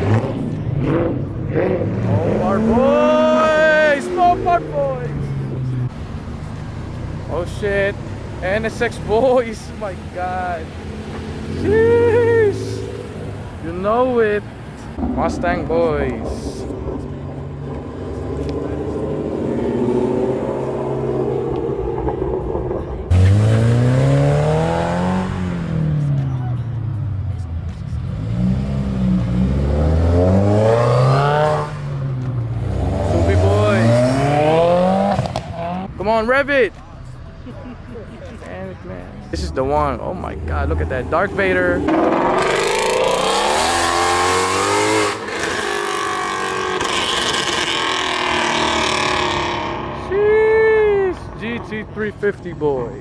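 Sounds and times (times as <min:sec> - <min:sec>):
car accelerating hard: 0:00.0 - 0:05.9, 0:15.0 - 0:26.4, 0:27.9 - 0:35.7, 0:40.3 - 0:50.4
car engines rumbling: 0:00.0 - 0:53.0.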